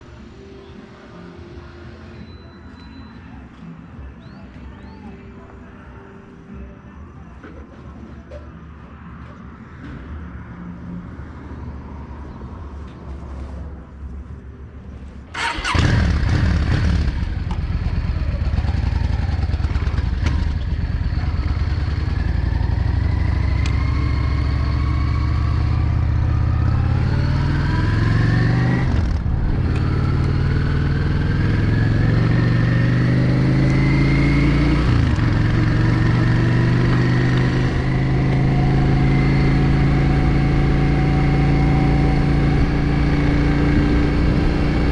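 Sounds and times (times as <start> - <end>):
motorcycle engine accelerating: 15.3 - 44.9.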